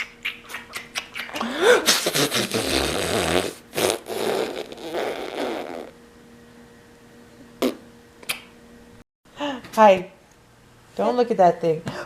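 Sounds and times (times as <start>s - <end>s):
person blowing raspberries: 0.3s - 6.0s.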